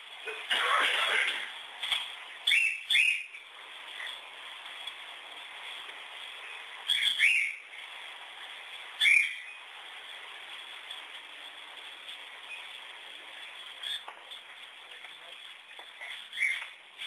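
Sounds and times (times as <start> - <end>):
background hiss: 0.0 - 17.0
bird calling: 2.4 - 3.4, 6.8 - 7.7, 9.0 - 9.6, 16.1 - 16.8.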